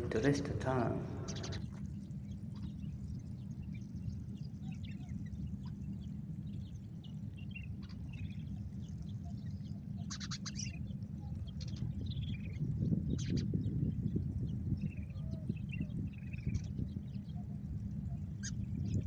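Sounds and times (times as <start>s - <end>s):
birds chirping: 0.0s - 2.6s
low outdoor rumble: 0.0s - 19.0s.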